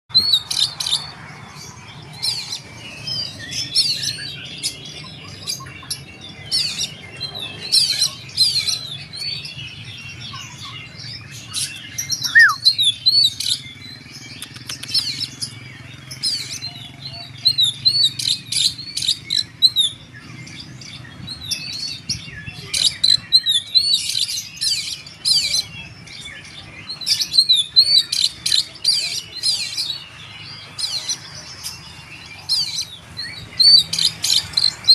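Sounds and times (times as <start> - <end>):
magpie-robin singing: 0.1 - 34.9.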